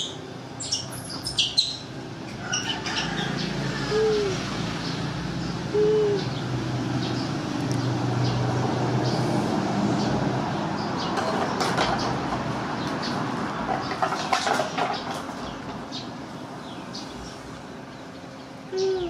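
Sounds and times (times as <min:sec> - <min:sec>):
soft animal hooting calls: 0:02.4 - 0:04.6, 0:05.7 - 0:06.4.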